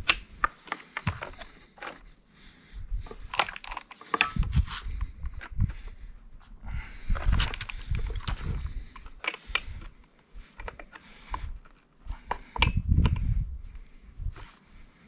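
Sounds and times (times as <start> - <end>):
tools clicking and knocking on metal: 3.3 - 5.6.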